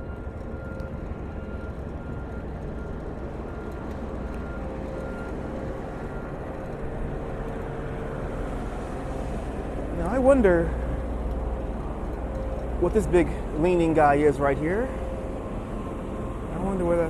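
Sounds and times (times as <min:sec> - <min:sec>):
faint steady whine: 0:00.0 - 0:17.0
road traffic hum: 0:00.0 - 0:17.0.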